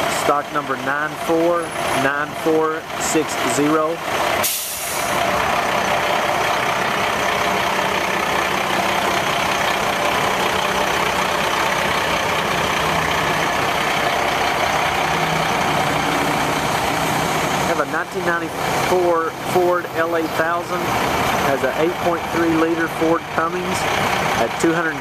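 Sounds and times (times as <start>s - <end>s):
truck diesel engine idling: 0.0s - 25.0s.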